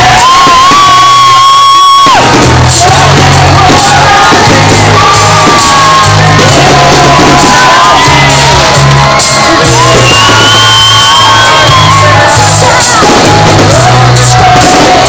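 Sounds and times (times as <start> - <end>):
loud music with bass beat: 0.0 - 15.0
person singing: 0.0 - 15.0.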